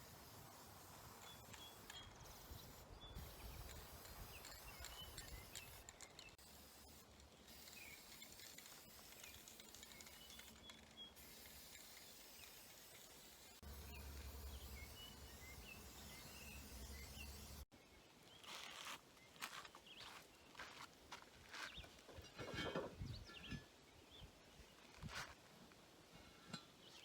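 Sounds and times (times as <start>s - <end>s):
steady low hiss: 0.0s - 10.3s
short bursts of hiss: 0.0s - 17.6s.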